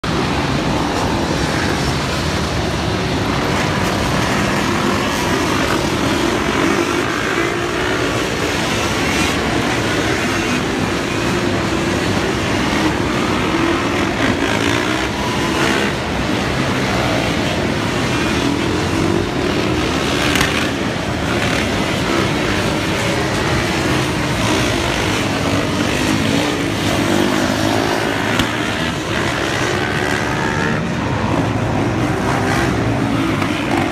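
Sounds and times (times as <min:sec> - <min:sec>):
atvs and dirt bikes revving: 0:00.0 - 0:33.9.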